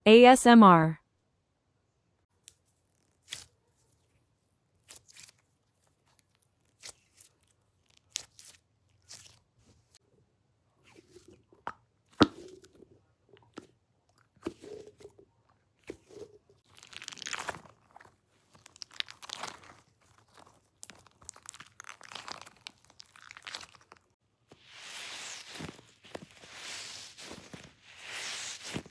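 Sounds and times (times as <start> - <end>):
squishy toy squishing: 15.8 - 24.1.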